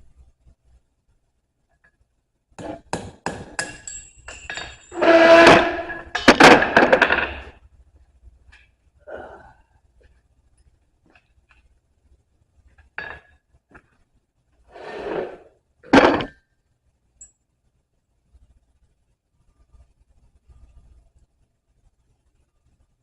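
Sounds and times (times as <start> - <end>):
metal tool tapping steel bar: 2.6 - 4.8.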